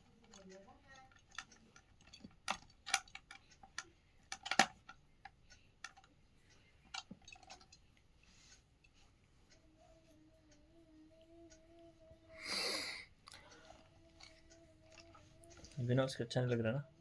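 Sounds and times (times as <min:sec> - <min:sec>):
plastic parts clicking and knocking: 0:00.0 - 0:06.2, 0:06.8 - 0:07.8.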